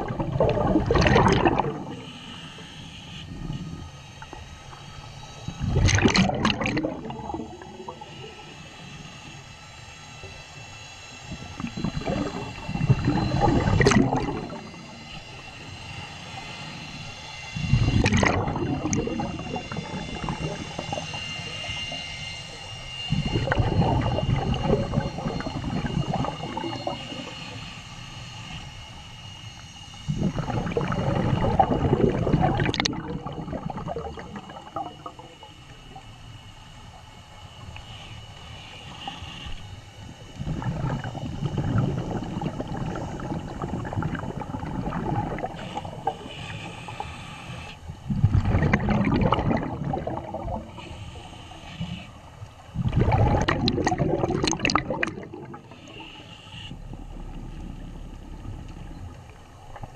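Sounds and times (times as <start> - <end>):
diver exhaling bubbles: 0.0 - 2.2, 5.6 - 8.0, 11.4 - 14.8, 17.7 - 21.6, 23.1 - 27.3, 30.1 - 35.4, 40.3 - 47.0, 48.0 - 51.9, 52.8 - 56.1, 56.7 - 59.9
faint high whine: 0.0 - 59.9.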